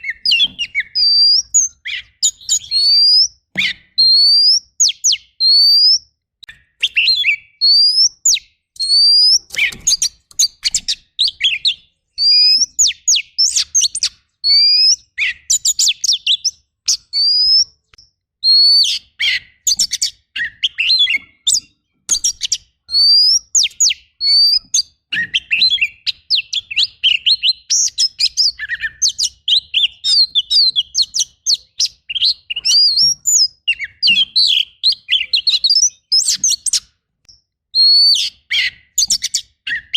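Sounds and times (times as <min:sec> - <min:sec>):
bird singing whistles: 0:00.0 - 0:39.9.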